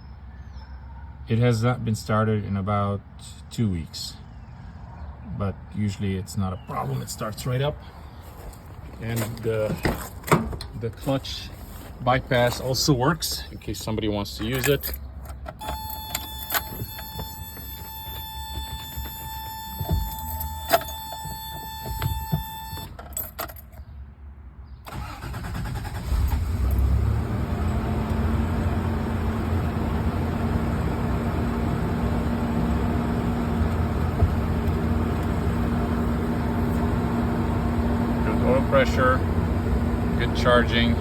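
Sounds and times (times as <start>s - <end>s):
engine cranking and idling: 8.3s - 23.1s, 24.9s - 41.0s.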